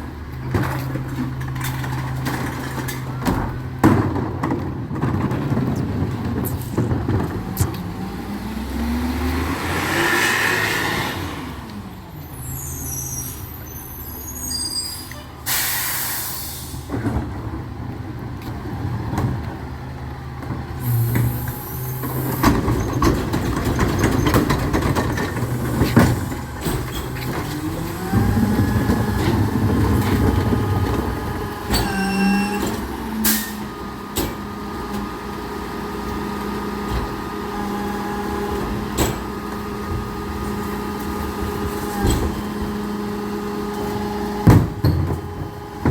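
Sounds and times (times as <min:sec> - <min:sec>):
air brake hiss: 0:12.5 - 0:16.9.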